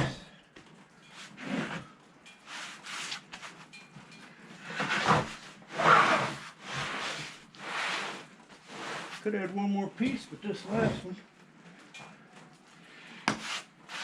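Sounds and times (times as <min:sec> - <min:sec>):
wood scraping on wood: 0:01.0 - 0:03.8, 0:04.4 - 0:11.2, 0:13.3 - 0:14.0.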